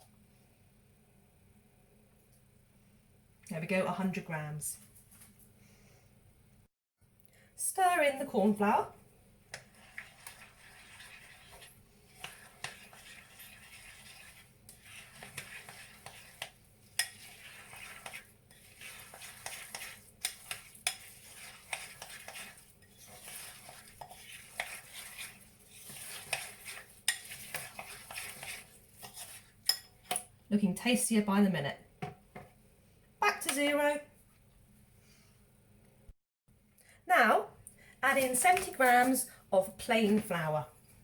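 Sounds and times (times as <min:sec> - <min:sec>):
spoon scraping and clicking in bowl: 0:09.5 - 0:30.3.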